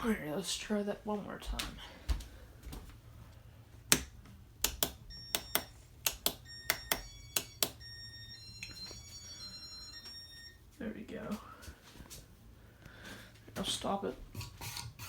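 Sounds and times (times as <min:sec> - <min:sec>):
button clicks: 0:03.9 - 0:07.8.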